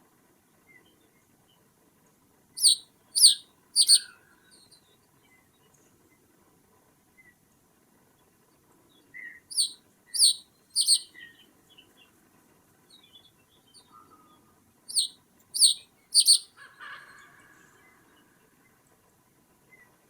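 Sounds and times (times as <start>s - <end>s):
bird calling sharp falling calls: 2.6s - 4.2s, 9.5s - 11.1s, 14.9s - 16.5s
faint bird chirps: 2.6s - 5.0s, 9.2s - 11.5s, 13.7s - 16.7s.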